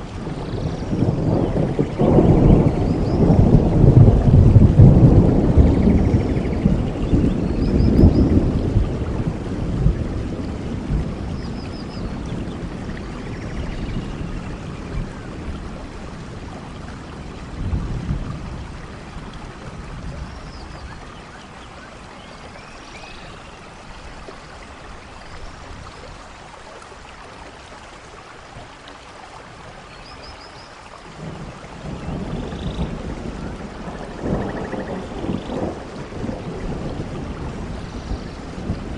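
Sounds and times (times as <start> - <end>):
thunder rumbling: 0.0 - 21.1, 31.1 - 38.9
steady rain falling: 0.0 - 38.9.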